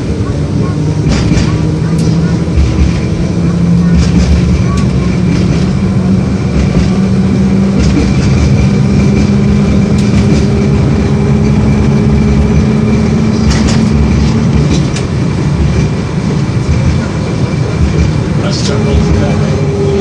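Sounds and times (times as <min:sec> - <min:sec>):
traction motor hum: 0:00.0 - 0:20.0
wheel-on-rail rumble: 0:00.0 - 0:20.0.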